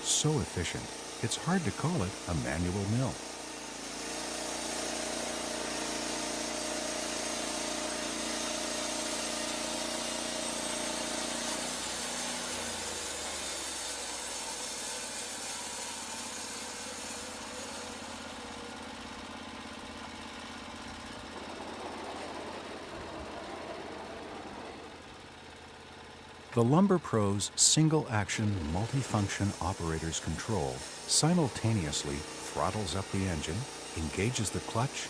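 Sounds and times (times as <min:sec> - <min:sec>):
band blade cutting wood: 0:00.0 - 0:18.6, 0:28.4 - 0:35.0
sawmill engine running: 0:00.0 - 0:35.0
high hiss: 0:27.8 - 0:35.0.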